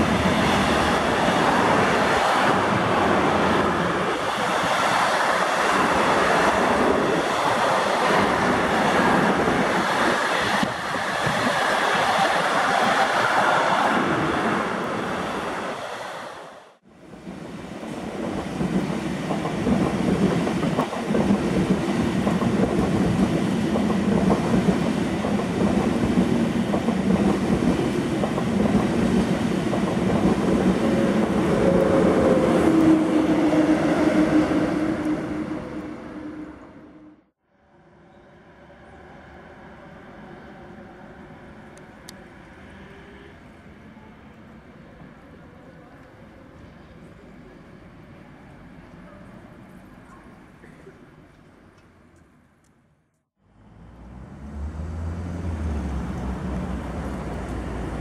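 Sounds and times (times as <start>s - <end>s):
freight train rolling past: 0.0s - 37.2s, 54.0s - 58.0s
high-speed train passing: 0.0s - 52.0s, 53.5s - 58.0s.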